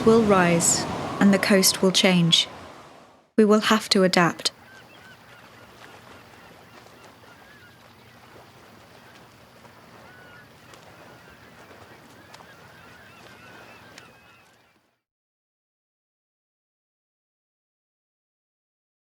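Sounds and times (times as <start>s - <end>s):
birds calling goose-like: 4.2s - 15.0s.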